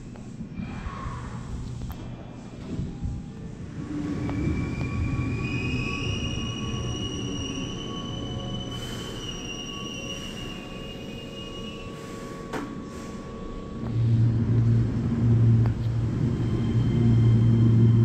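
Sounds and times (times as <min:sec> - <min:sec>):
low train rumble: 0:00.0 - 0:18.0
train low hum: 0:00.0 - 0:18.0
train brakes squealing: 0:03.8 - 0:13.7, 0:16.0 - 0:18.0.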